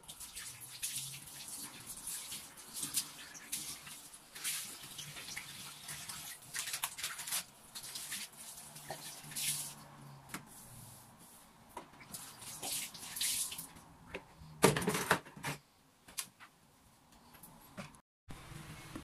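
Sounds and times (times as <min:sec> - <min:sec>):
water running from a tap: 0:00.0 - 0:09.7.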